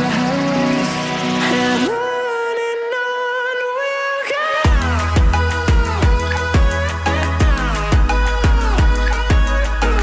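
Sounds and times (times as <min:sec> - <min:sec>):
electronic pop music: 0:00.0 - 0:10.0
kick drum beat: 0:04.7 - 0:06.8.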